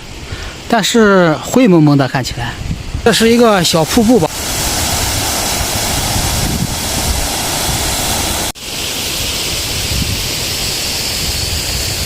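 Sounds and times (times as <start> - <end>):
small waterfall rushing: 3.1 - 12.0.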